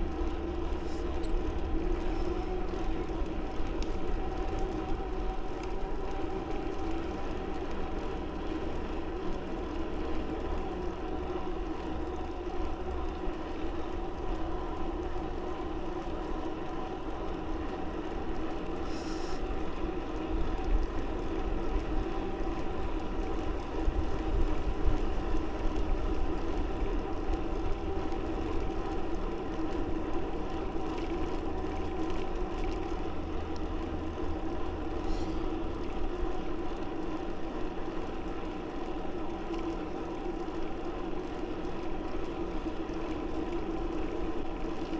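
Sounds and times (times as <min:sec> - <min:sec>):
bicycle humming in motion: 0:00.0 - 0:44.9
wind rumble on microphone: 0:19.5 - 0:36.4.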